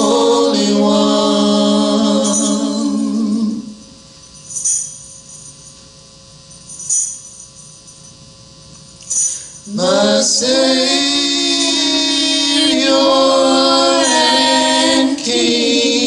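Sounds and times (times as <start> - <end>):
gospel singing: 0.0 - 3.9, 9.7 - 16.0
tambourine shaking: 2.2 - 9.8.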